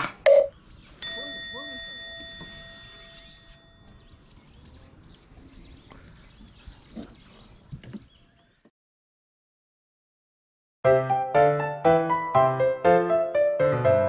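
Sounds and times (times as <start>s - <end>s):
ringing tone: 0.3s - 3.9s
small birds chirping: 0.5s - 8.7s.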